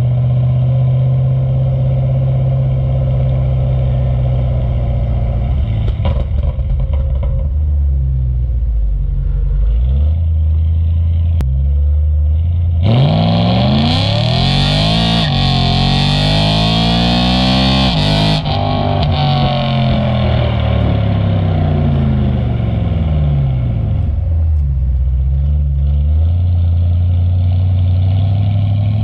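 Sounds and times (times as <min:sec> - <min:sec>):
car engine droning: 0:00.0 - 0:29.0
distorted electric guitar music: 0:12.9 - 0:23.3.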